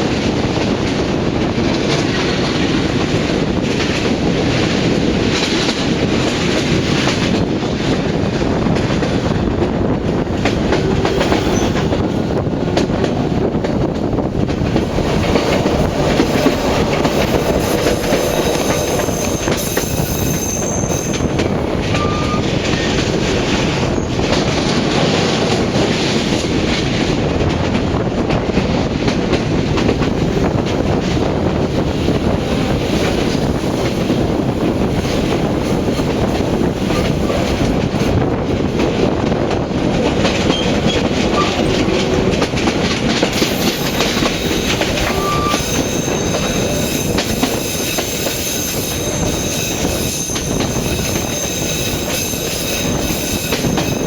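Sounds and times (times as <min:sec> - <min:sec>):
train wheels rumbling on rails: 0:00.0 - 0:54.0
high squeal: 0:11.3 - 0:11.8, 0:16.3 - 0:22.5, 0:43.4 - 0:54.0.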